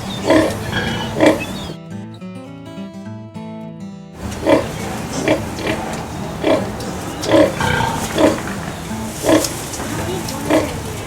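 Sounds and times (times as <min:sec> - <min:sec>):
pigs grunting: 0:00.0 - 0:01.8, 0:04.2 - 0:11.0
steady background noise: 0:00.0 - 0:01.8, 0:04.2 - 0:11.0.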